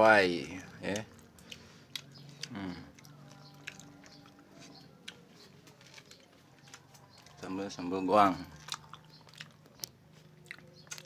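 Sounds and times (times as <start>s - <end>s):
person chewing food: 0.5s - 11.0s
person humming: 2.4s - 3.1s
wet mouth clicks and smacks: 8.6s - 11.0s.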